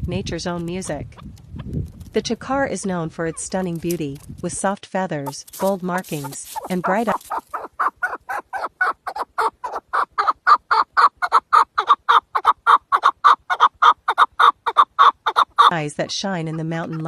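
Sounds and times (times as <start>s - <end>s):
partridge clucking calls: 5.3s - 17.0s.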